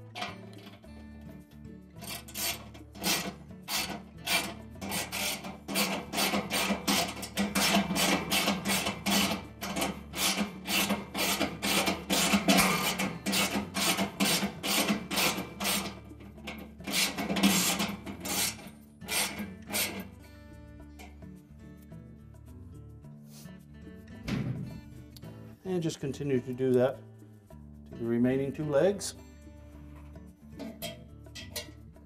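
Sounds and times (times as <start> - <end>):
ratchet wrench clicking: 2.0 - 16.1.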